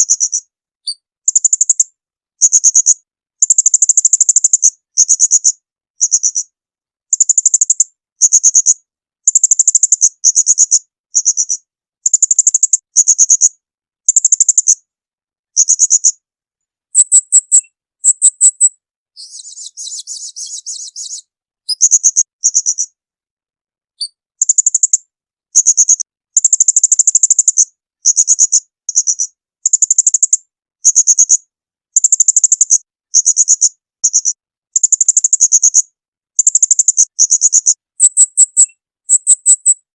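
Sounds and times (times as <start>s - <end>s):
songbird shrill calls: 16.9s - 22.9s, 36.4s - 39.9s
soft buzzy bird trill: 16.9s - 23.0s, 36.4s - 39.9s.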